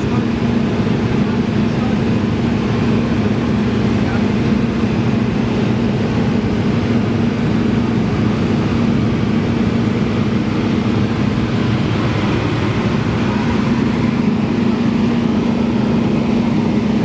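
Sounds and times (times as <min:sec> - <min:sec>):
propeller plane engine droning: 0:00.0 - 0:17.0.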